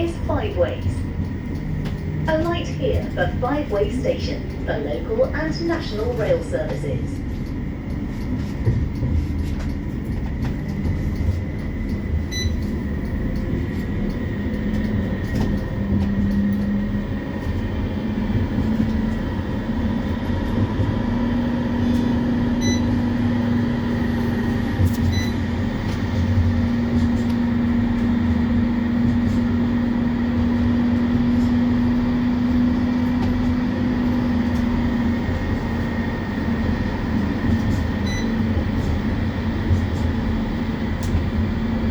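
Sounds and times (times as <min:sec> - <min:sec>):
tram wheels rumbling on track: 0:00.0 - 0:41.9.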